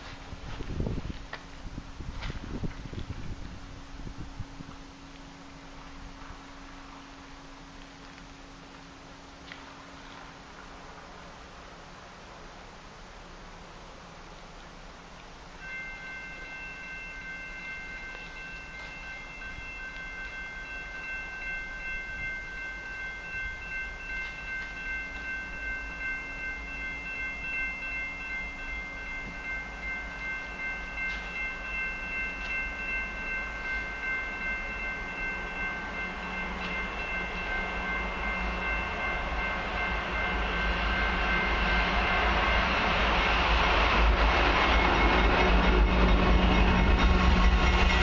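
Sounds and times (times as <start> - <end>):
high-pitched ringing tone: 0.0 - 10.7, 15.3 - 48.0
freight train rumble and wheel noise: 0.0 - 48.0.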